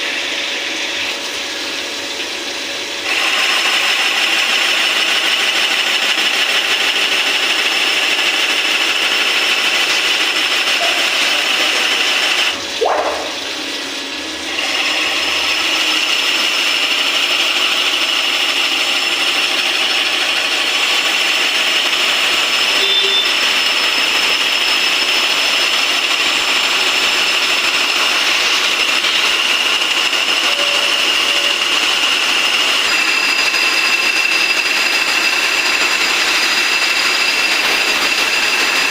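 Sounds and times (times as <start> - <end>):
cnc machine cutting metal with whine: 3.0 - 13.5, 14.2 - 38.9.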